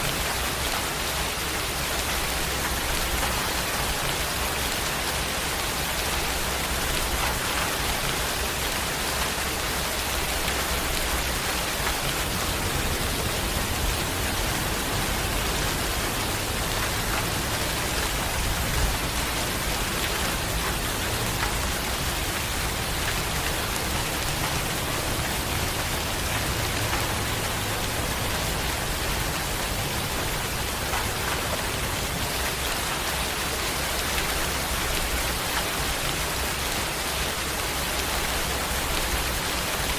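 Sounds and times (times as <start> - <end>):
raindrop ticks: 0.0 - 39.9
steady rain falling: 0.0 - 39.9.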